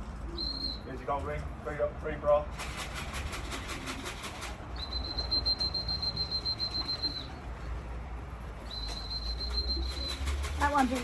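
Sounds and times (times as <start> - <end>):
high steady whistle: 4.8 - 7.3, 8.7 - 10.2.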